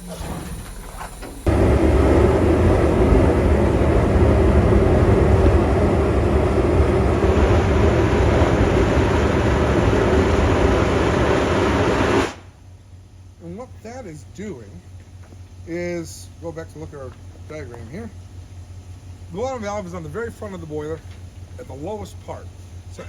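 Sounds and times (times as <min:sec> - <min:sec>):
steam and water blasting out: 0:00.0 - 0:12.5.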